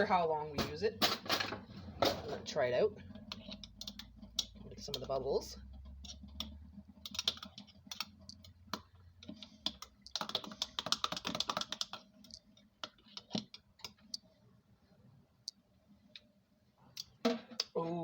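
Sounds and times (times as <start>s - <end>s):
kitchenware clicks and taps: 0.6s - 2.5s
dense run of quick clicks: 9.6s - 14.0s.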